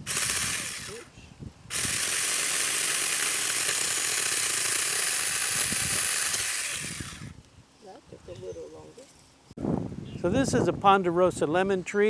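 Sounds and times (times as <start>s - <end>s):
electric chainsaw cutting branch: 0.0s - 1.1s, 1.7s - 7.4s.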